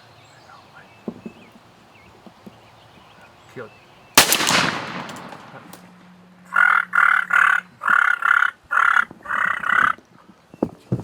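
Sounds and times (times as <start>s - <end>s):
shotgun blast echo: 4.2s - 5.9s
turkey gobbling: 6.5s - 10.0s.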